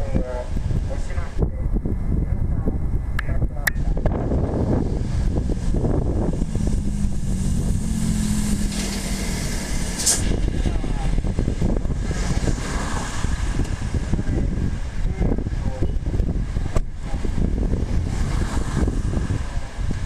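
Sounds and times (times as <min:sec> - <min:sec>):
wind buffeting microphone: 0:00.0 - 0:20.0
brief hiss: 0:10.0 - 0:10.3.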